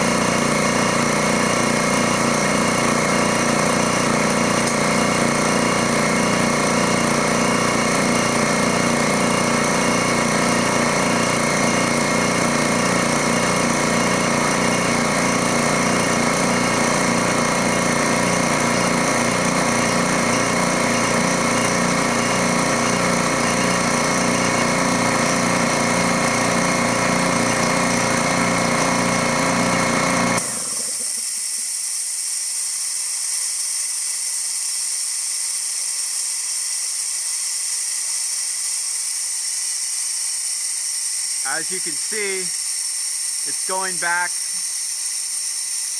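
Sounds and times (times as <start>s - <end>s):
air compressor running: 0.0s - 45.9s
loud steady air hiss: 30.4s - 45.9s.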